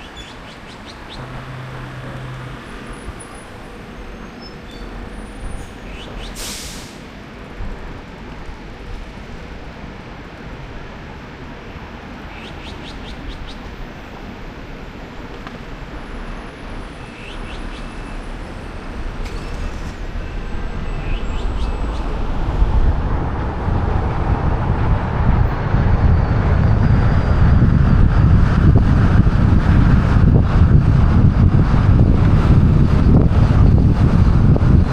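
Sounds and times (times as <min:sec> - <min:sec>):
street traffic: 0:00.0 - 0:34.9
wind on microphone: 0:18.8 - 0:34.9.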